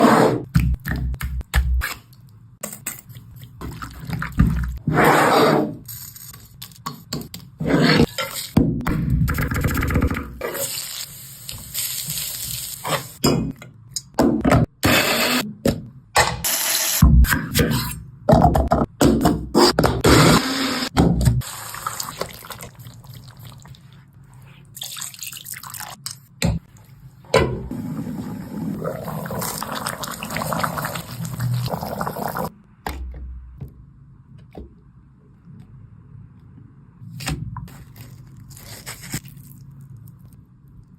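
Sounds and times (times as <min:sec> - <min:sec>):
liquid pouring and splashing: 0:21.4 - 0:24.1, 0:24.8 - 0:26.0, 0:28.7 - 0:32.5.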